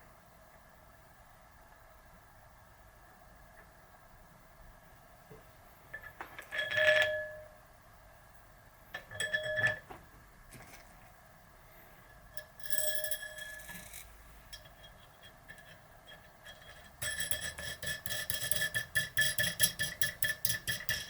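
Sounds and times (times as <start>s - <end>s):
small metal parts clinking: 12.4s - 17.5s.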